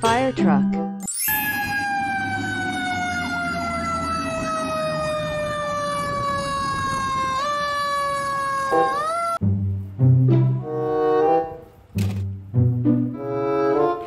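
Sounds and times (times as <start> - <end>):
fire engine siren wailing: 1.2 - 9.4
truck engine rumbling: 1.3 - 14.0.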